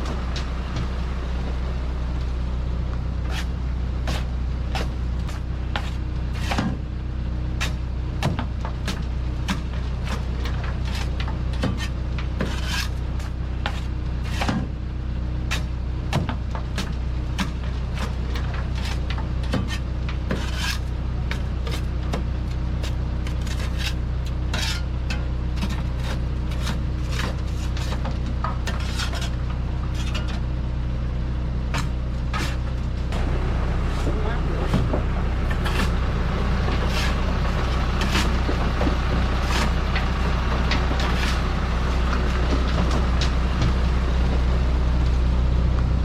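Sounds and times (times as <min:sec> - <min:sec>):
truck engine running: 0:00.0 - 0:46.0.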